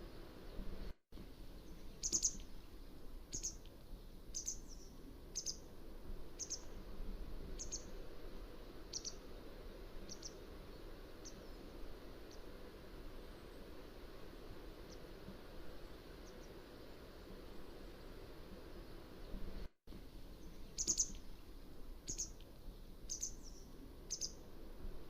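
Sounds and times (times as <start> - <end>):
bird calling: 1.7 - 2.4, 3.3 - 3.6, 4.3 - 5.7, 6.4 - 6.7, 7.6 - 7.9, 8.9 - 9.2, 10.1 - 10.4, 20.4 - 21.2, 22.1 - 22.4, 23.1 - 24.4.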